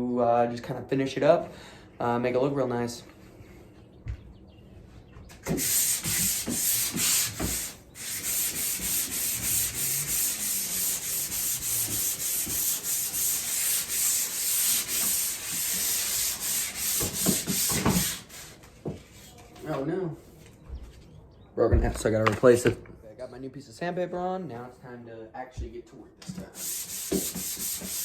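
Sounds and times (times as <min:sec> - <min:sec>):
sandpaper rubbing over drywall: 0:05.4 - 0:19.5, 0:26.4 - 0:28.0.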